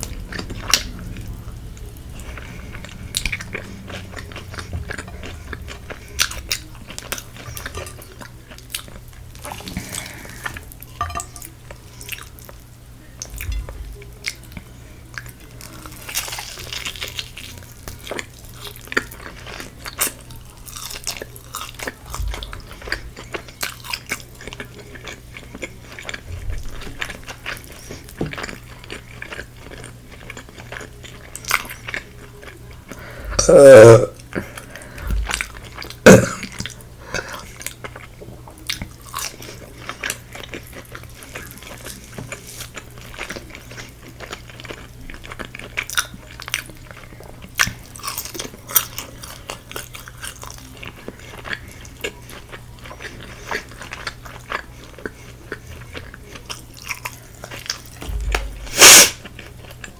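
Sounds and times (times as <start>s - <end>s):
person chewing crispy food: 0.0s - 12.6s, 13.2s - 59.9s
steady low hum: 0.0s - 16.0s, 58.0s - 59.3s.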